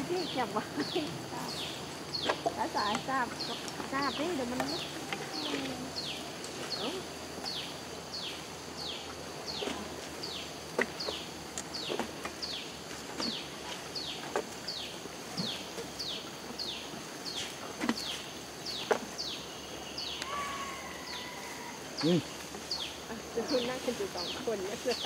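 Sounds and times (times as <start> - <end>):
forest background: 0.0 - 25.0
bird call falling in pitch: 20.1 - 21.8.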